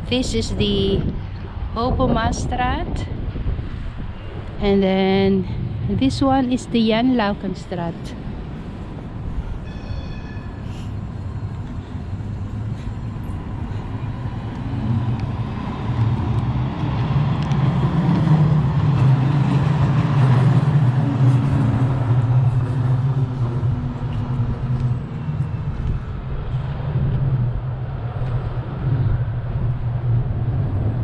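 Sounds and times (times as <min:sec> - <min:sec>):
brief high ringing tone: 0:09.6 - 0:10.6
vehicle passing rumble: 0:10.5 - 0:31.0.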